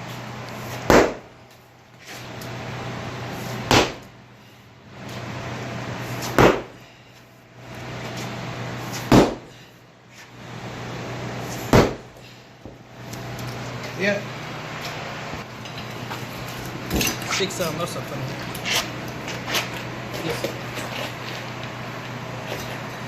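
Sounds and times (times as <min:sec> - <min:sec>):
steady low hum: 0:00.0 - 0:23.0
hammer striking concrete: 0:00.9 - 0:01.3, 0:03.7 - 0:04.1, 0:06.3 - 0:06.8, 0:09.1 - 0:09.5, 0:11.7 - 0:12.1.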